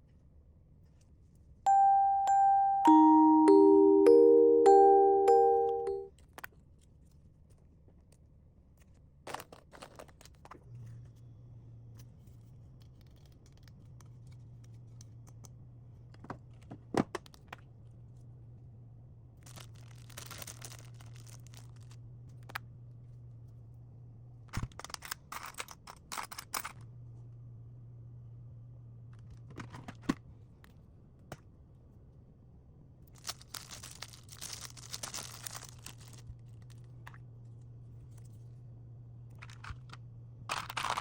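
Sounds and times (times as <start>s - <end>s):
low steady hum: 1.7s - 6.1s
packaging tearing: 19.5s - 21.7s, 33.2s - 36.2s.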